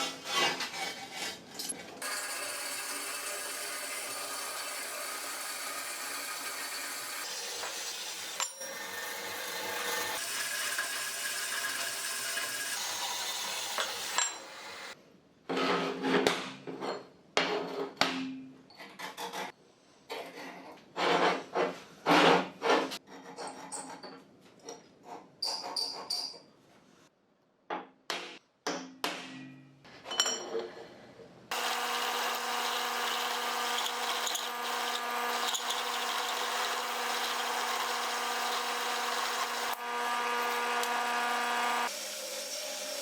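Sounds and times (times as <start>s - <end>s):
steady tool rasping: 2.0s - 15.0s, 31.5s - 42.0s.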